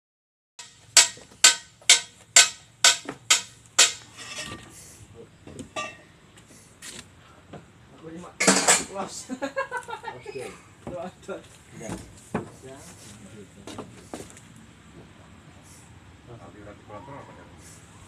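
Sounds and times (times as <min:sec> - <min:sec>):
sharp ringing knocks: 0:00.6 - 0:04.6
soft knocks and clatter: 0:10.8 - 0:12.6.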